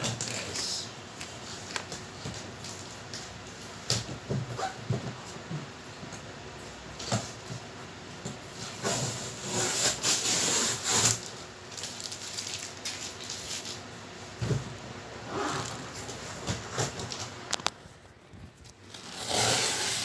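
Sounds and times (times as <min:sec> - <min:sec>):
packaging rustling and scraping: 0:08.5 - 0:13.9, 0:15.3 - 0:20.0.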